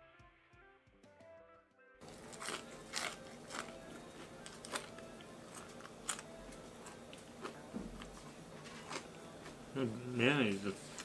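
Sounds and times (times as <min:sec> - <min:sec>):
food clicking and rustling: 0:02.0 - 0:09.6
person chewing: 0:02.0 - 0:09.7.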